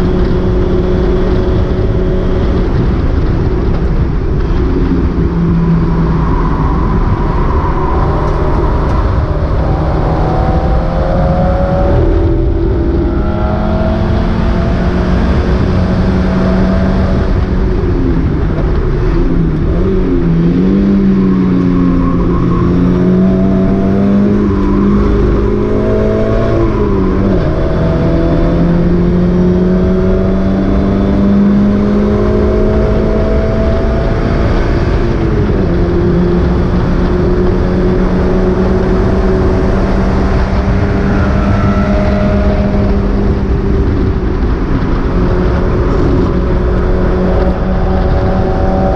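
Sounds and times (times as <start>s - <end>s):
race car engine accelerating: 0.0s - 48.9s
wind and road noise: 0.0s - 48.9s.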